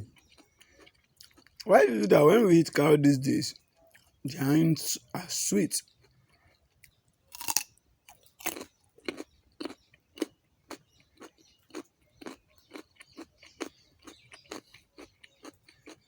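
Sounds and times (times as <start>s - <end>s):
person chewing raw carrot: 0.0s - 1.7s, 5.8s - 16.0s.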